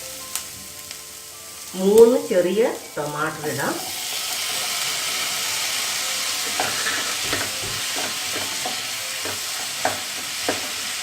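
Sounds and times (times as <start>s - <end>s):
onion and tomato sizzling in pan: 0.0s - 11.0s
spoon scraping pan: 6.4s - 10.9s.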